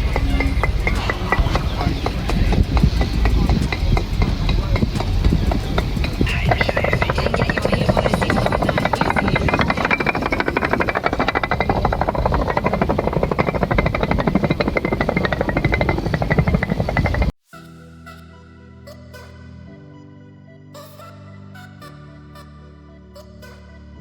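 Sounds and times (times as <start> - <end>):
background music with held tones: 0.0 - 11.4, 17.5 - 24.0
machine pulsing rattle: 0.0 - 17.3.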